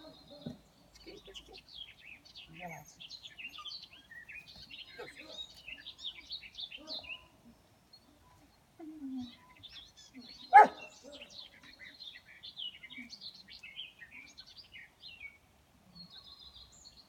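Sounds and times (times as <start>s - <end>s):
small birds chirping: 0.0s - 17.0s
puppy yelp: 10.5s - 10.8s.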